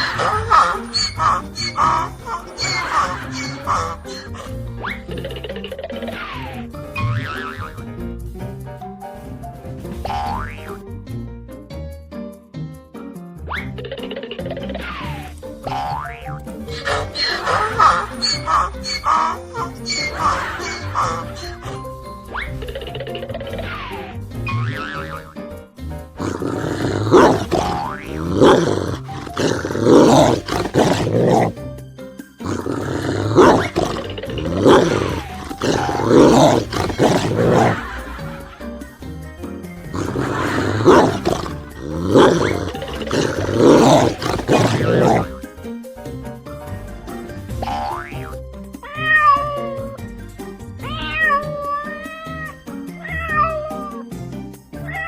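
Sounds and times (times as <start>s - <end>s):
loud animal calls: 0.0s - 5.1s, 16.7s - 21.8s, 26.2s - 31.6s, 32.4s - 38.0s, 40.0s - 45.3s
background music: 0.0s - 55.0s
cat meowing: 48.9s - 49.8s, 50.8s - 54.0s.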